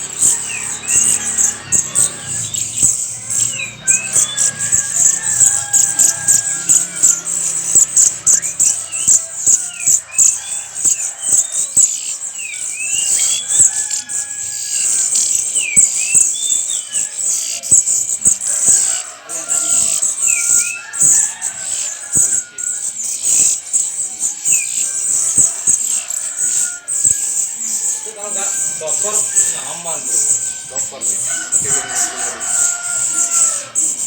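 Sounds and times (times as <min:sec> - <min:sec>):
songbirds chirping and whistling: 0:00.0 - 0:34.0.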